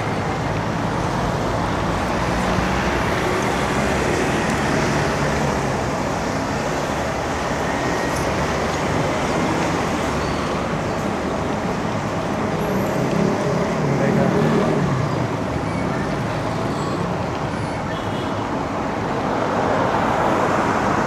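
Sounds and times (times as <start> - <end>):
tyres on the road: 0.0 - 21.0
vehicle engines humming: 0.0 - 21.0.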